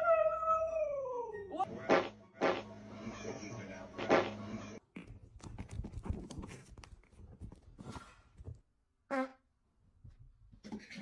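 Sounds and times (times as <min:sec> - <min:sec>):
fart sound: 0:01.9 - 0:02.7, 0:04.0 - 0:04.4.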